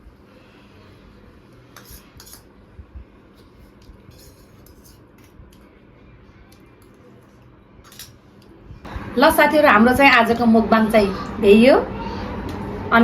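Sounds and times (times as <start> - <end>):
cutlery clinking on a plate: 7.8 - 8.2.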